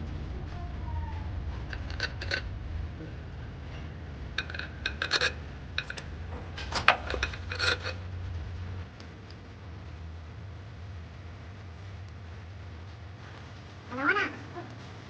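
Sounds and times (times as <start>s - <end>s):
steady low hum: 0.0s - 15.0s
metal tools clinking and scraping: 1.6s - 2.5s, 3.7s - 8.1s.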